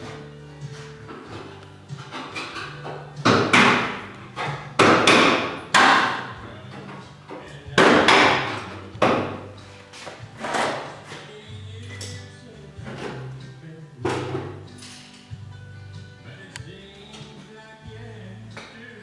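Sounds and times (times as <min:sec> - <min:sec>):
hammer striking sheet metal: 0:02.1 - 0:06.4, 0:07.8 - 0:09.5.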